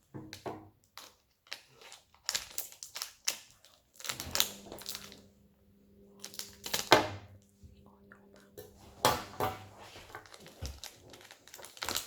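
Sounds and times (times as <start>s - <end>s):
plastic packaging crinkling: 0.9s - 5.3s, 6.2s - 7.0s, 8.4s - 12.0s.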